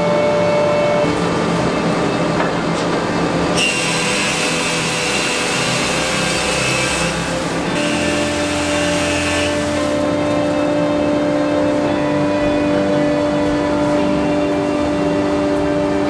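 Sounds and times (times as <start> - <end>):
machine humming: 0.0 - 16.0
router cutting wood: 1.0 - 13.4.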